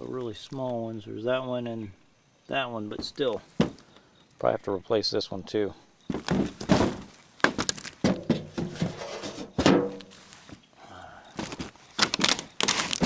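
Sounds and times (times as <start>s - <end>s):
knocks and thunks on roof: 6.1s - 10.0s.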